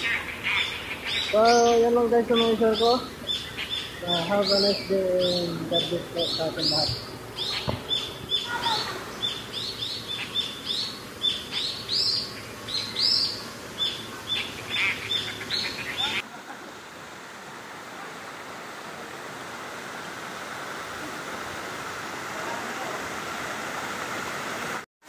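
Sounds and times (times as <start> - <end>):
birds chirping: 0.0 - 16.3
waterfall rushing: 0.0 - 24.9.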